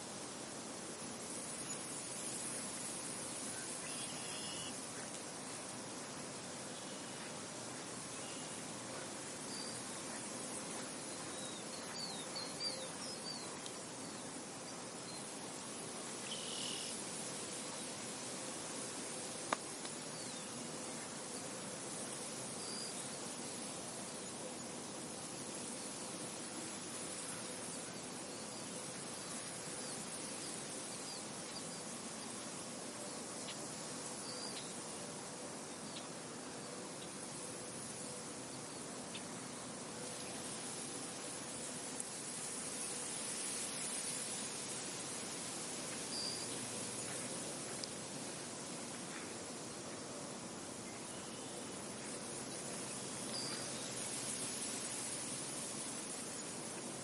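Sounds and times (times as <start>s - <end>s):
wind blowing through field: 0.0s - 57.0s
small birds chirping: 6.7s - 15.3s.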